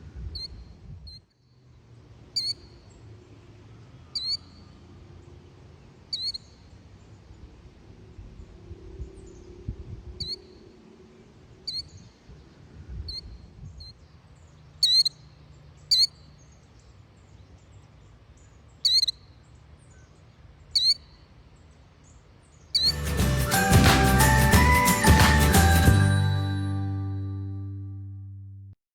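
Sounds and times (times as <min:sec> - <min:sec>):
killdeer calling: 0:00.3 - 0:00.6, 0:02.4 - 0:02.8, 0:04.1 - 0:04.7, 0:06.1 - 0:06.6, 0:10.2 - 0:10.5, 0:11.6 - 0:12.0, 0:14.8 - 0:16.3, 0:18.8 - 0:19.3, 0:20.7 - 0:21.2, 0:22.7 - 0:23.1.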